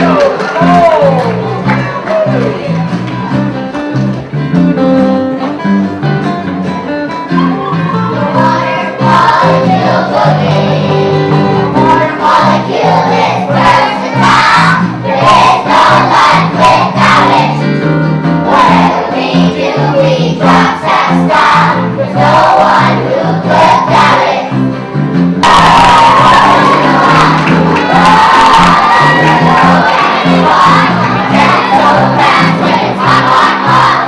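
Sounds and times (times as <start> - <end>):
strummed acoustic guitar: 1.4 - 34.0
children singing together: 8.3 - 17.8, 18.4 - 24.7, 25.4 - 34.0.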